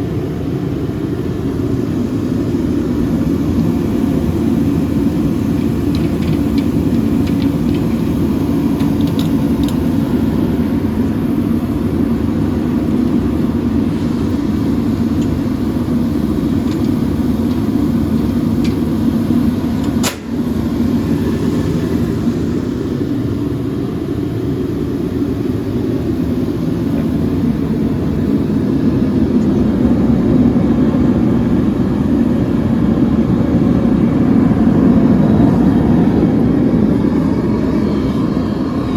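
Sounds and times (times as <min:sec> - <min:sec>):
heater burner and fan rumble: 0:00.0 - 0:38.9
sharp click: 0:19.8 - 0:20.4.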